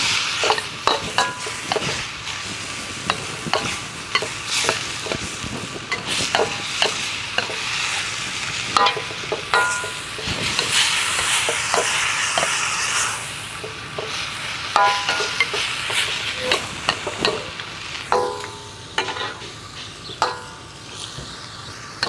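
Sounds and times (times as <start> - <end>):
stir-fry sizzling in pan: 0.0 - 22.0
metal utensil knocking and scraping: 0.4 - 2.0, 3.0 - 5.3, 5.9 - 8.0, 8.7 - 12.7, 13.6 - 19.6.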